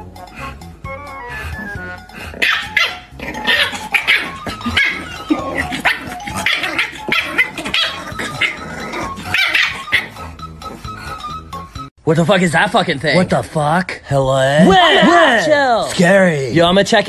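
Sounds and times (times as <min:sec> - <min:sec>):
puppy barking sharply: 0:02.4 - 0:04.9.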